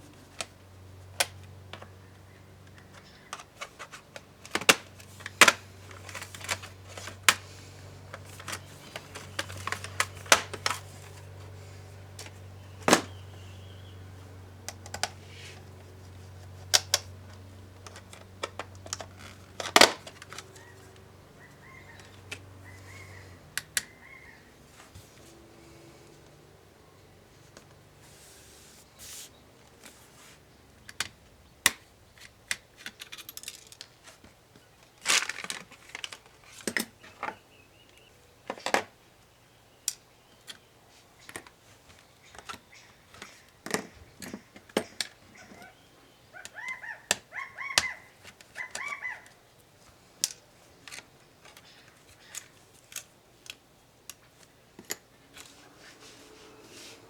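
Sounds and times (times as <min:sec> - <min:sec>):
tools and parts clicking and scraping: 0:00.2 - 0:13.1, 0:14.7 - 0:24.0, 0:30.8 - 0:37.4, 0:39.8 - 0:45.7, 0:46.4 - 0:57.0.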